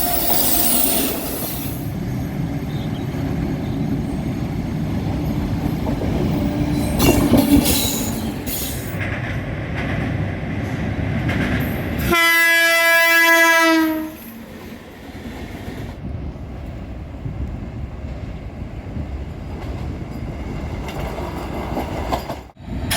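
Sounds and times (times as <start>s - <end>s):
train wheels rumbling and clattering: 0.0s - 12.2s, 14.3s - 22.9s
train horn: 12.0s - 14.4s.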